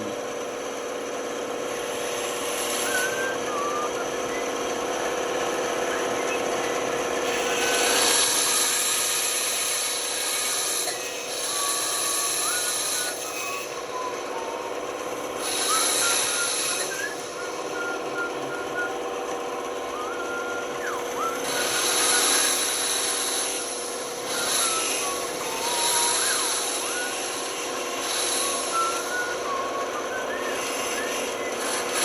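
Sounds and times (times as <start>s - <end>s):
band saw humming: 0.0s - 32.0s
saw blade hissing through wood: 7.3s - 13.7s, 15.4s - 18.3s, 21.2s - 29.6s.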